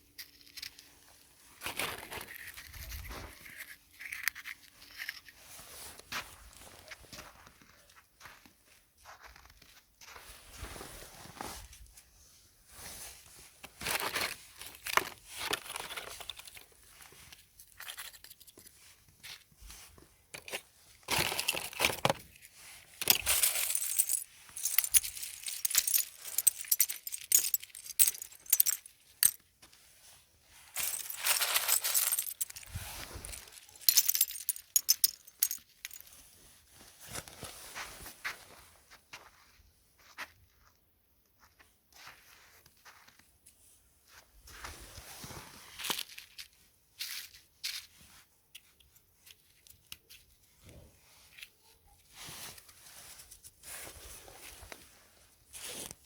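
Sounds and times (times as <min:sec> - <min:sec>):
handling rustling: 0:12.9 - 0:38.6.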